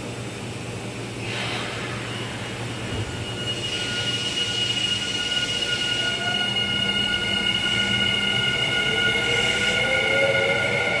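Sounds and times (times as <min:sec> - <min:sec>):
electric train motor whine: 0:02.4 - 0:11.0.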